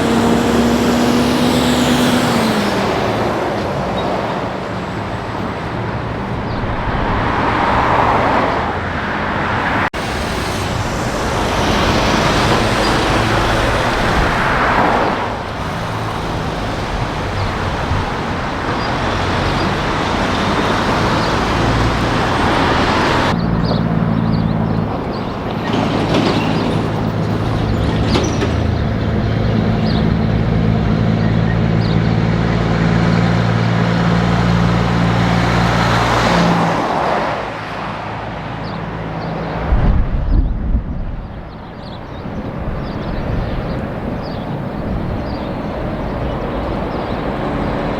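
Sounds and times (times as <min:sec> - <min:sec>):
truck diesel engine droning: 0:00.0 - 0:07.8, 0:10.0 - 0:36.6
vehicles passing on highway: 0:00.0 - 0:47.9.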